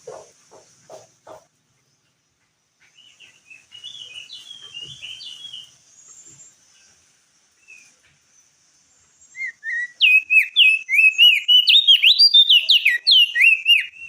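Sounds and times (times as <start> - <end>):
bird chirping rapidly: 2.9 - 6.9, 7.6 - 14.0.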